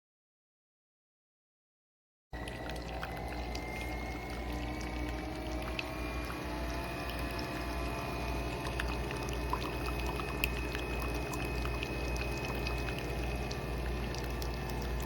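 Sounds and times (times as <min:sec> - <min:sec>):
coffee machine motor hum: 0:02.4 - 0:15.0
coffee pouring and dripping: 0:02.4 - 0:15.0.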